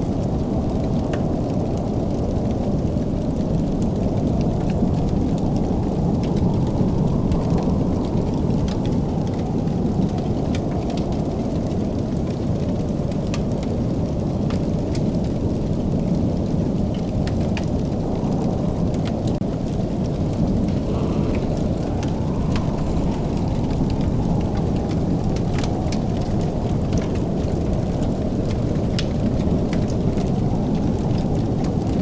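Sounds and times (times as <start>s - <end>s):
wood fire crackling: 0.1s - 32.0s
low rumble: 19.4s - 32.0s.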